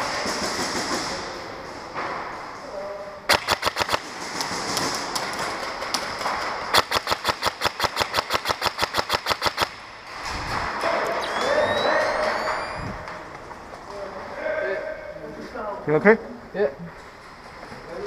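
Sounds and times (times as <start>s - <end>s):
airsoft guns firing: 0.0s - 1.4s, 3.3s - 9.9s.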